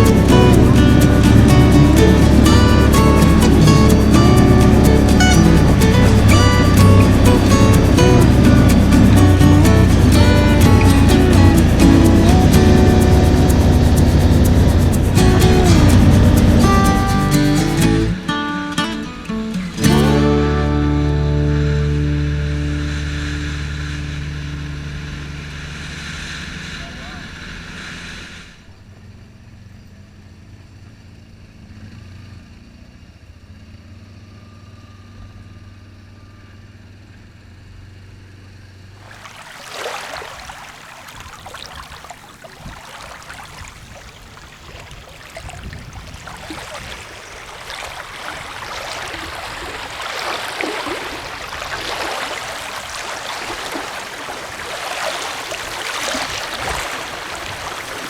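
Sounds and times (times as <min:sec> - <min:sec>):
atv engine running: 0:00.0 - 0:18.2, 0:19.9 - 0:26.7
stream rushing: 0:00.0 - 0:25.8, 0:39.0 - 0:58.0.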